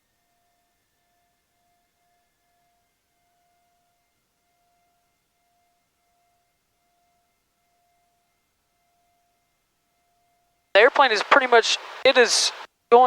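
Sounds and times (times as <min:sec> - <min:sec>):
faint hiss: 0:10.8 - 0:12.7
thin electronic tones: 0:10.8 - 0:12.7.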